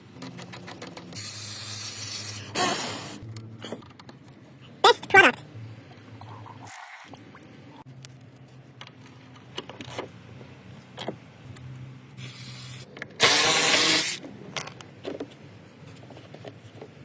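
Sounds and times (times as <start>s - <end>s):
hissing spray: 1.2s - 3.2s.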